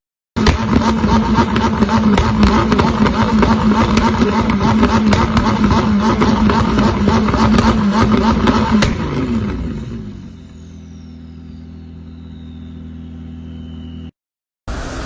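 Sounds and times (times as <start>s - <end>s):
exhaust crackles: 0.4s - 12.2s
sports car engine steady revs: 0.4s - 14.1s.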